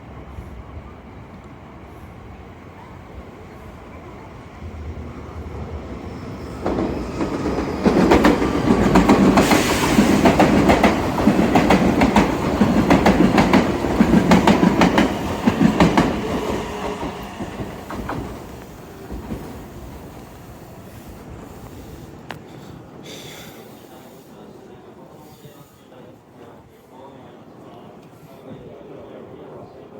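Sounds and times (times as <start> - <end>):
electric train passing: 0.0 - 23.1
train wheels clacking on rail joints: 6.6 - 20.3.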